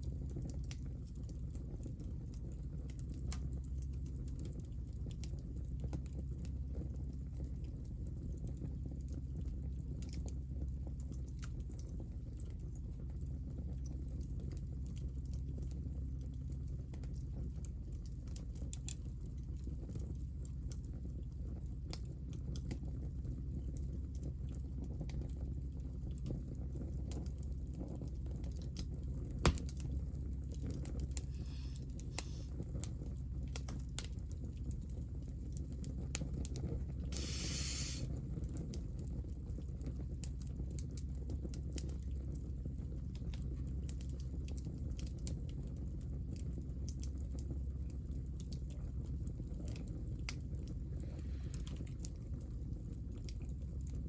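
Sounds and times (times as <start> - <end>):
wood fire crackling: 13.4 - 38.1, 40.0 - 54.0
fire popping: 28.8 - 32.5, 37.1 - 38.1
fire hissing: 31.2 - 32.5, 37.1 - 38.1.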